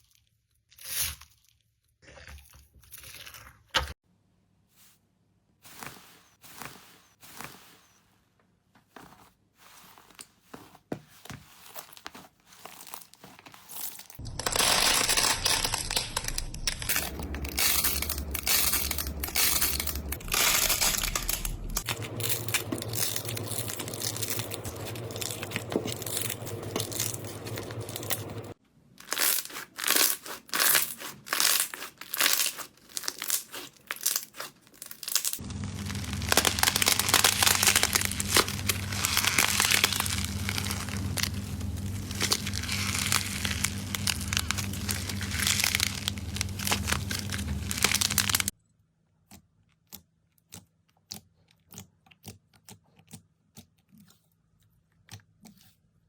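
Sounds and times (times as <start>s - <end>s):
slime crackling: 14.2s - 48.5s.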